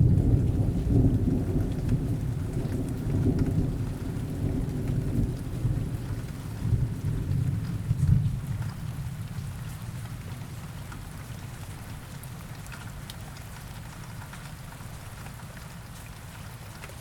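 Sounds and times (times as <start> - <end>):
low thunder rumble: 0.0 - 8.4
steady rain falling: 0.0 - 17.0.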